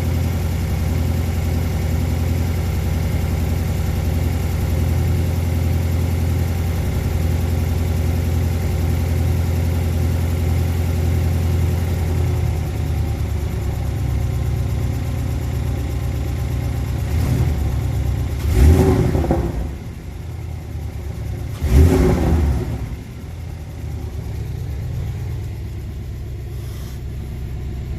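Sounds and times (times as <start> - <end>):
car engine idling and revving: 0.0 - 27.9.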